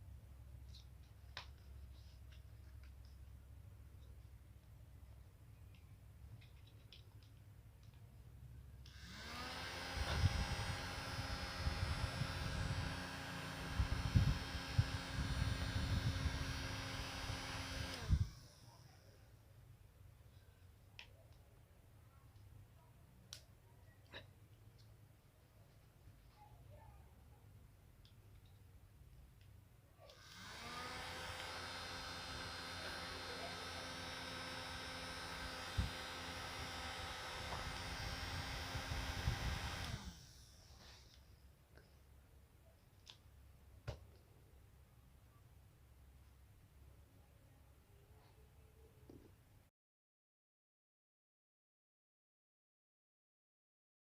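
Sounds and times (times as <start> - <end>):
small electric motor humming: 8.9 - 18.8, 30.1 - 41.0.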